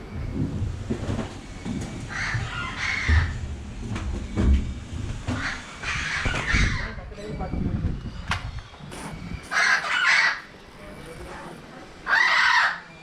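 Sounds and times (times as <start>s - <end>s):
harsh caw-like bird calls: 2.0s - 3.4s, 5.3s - 7.0s, 9.4s - 10.5s, 12.0s - 13.0s.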